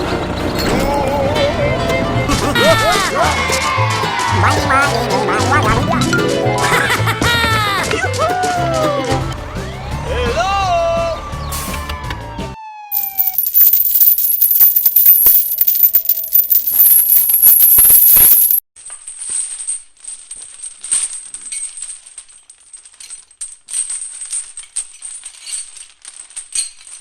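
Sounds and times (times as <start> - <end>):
small hard pieces rattling: 13.0 - 27.0.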